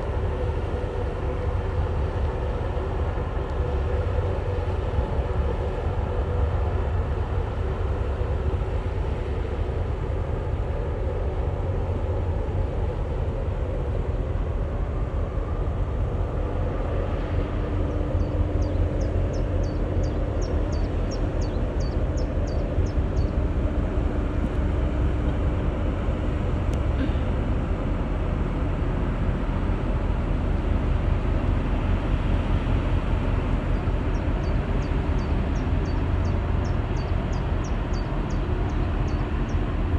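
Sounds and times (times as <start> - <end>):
boat engine rumble: 0.0 - 39.9.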